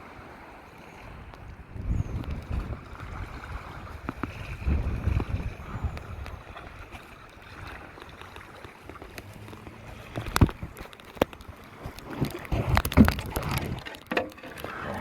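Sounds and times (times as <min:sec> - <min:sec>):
waves lapping against kayak hull: 0:00.0 - 0:15.0
wind buffeting microphone: 0:00.0 - 0:15.0.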